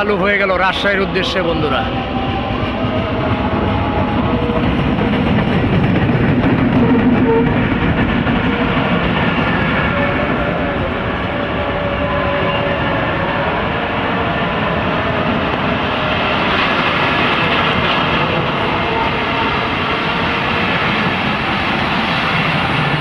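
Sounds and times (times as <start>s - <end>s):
train carriages rumbling on track: 0.0s - 23.0s.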